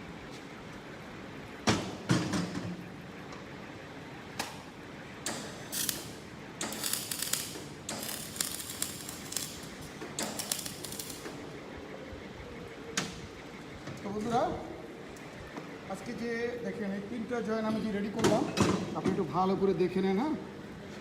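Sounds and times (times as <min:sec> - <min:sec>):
welding arc bursts: 0:05.3 - 0:11.4.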